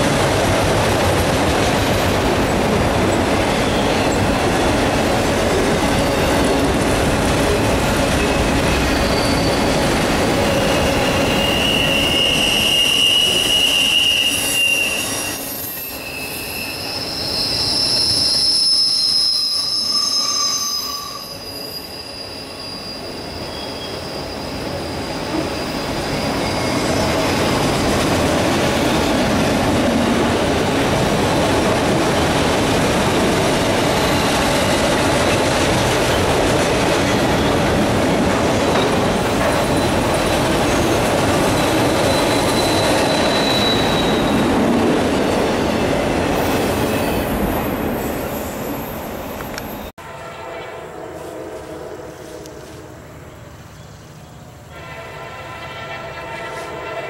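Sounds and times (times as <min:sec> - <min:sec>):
rumble of train cars rolling: 0:00.0 - 0:49.9
train wheels squealing: 0:03.4 - 0:04.4, 0:07.4 - 0:28.0, 0:38.5 - 0:44.6, 0:45.6 - 0:49.9.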